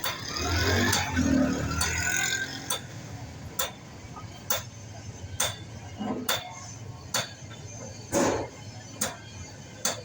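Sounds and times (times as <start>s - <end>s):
hammer striking metal: 3.6s - 3.8s, 5.4s - 5.7s, 9.8s - 10.0s.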